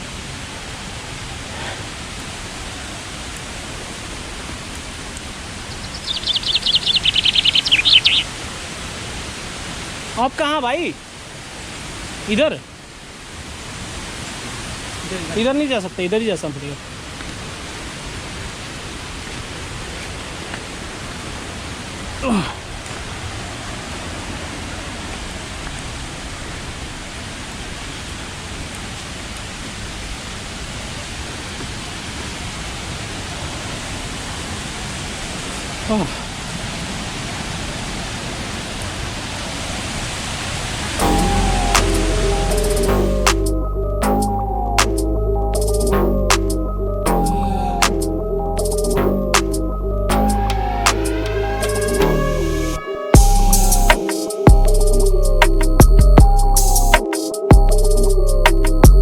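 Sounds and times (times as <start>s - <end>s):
waterfall rushing: 0.0s - 43.6s
bird trilling: 5.7s - 8.3s.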